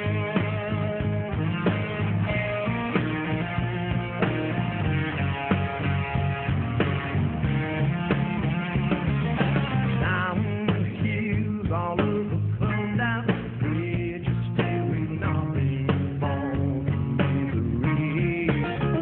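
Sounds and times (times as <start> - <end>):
bass guitar: 0.0 - 19.0
electric guitar: 0.0 - 19.0
steady drum beat: 0.0 - 19.0
man singing: 10.0 - 19.0.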